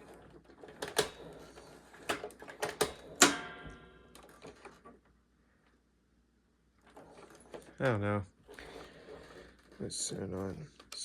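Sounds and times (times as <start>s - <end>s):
vacuum cleaner clicks and clunks: 0.0s - 5.0s
metallic spring ringing: 3.2s - 4.2s.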